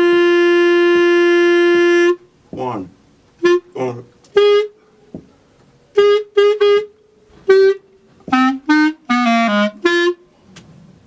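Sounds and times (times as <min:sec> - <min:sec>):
solo clarinet playing: 0:00.0 - 0:02.3, 0:03.4 - 0:04.9, 0:05.9 - 0:10.3.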